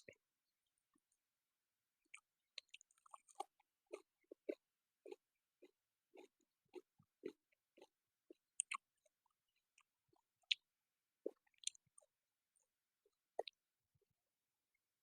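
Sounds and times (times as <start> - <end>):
person chewing food: 2.1 - 12.2, 13.0 - 13.6.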